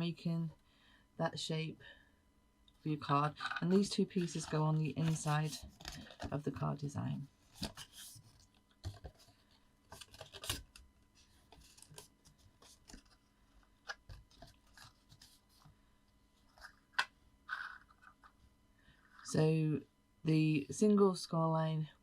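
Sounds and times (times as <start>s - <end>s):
paper rustling and tapping: 11.5s - 13.2s.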